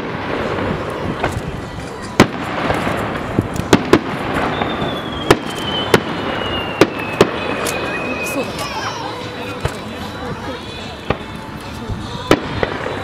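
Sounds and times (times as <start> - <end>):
distant firework bangs: 2.1 - 8.1
falling firework whistle: 3.8 - 9.0.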